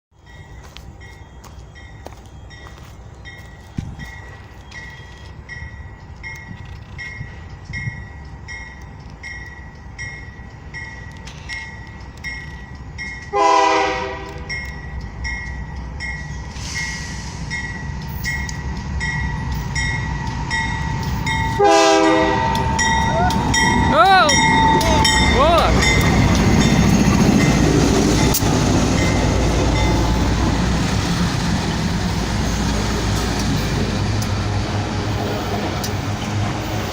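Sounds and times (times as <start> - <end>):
locomotive rumble: 0.2 - 36.9
locomotive air horn blasts: 13.3 - 14.5, 21.6 - 22.9.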